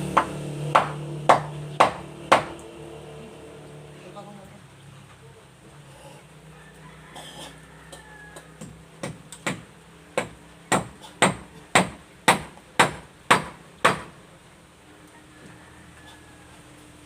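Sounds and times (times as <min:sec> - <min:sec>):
hammer driving nail into wood: 0:00.2 - 0:02.6, 0:08.6 - 0:14.1.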